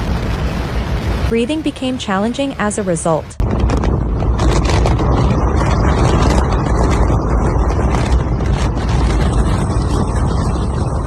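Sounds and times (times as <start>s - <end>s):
wind buffeting microphone: 3.3s - 11.0s.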